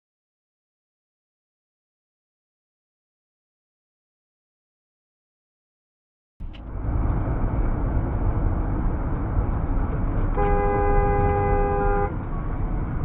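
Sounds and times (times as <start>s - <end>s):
car road and engine rumble: 6.4s - 13.0s
car horn: 10.2s - 12.3s.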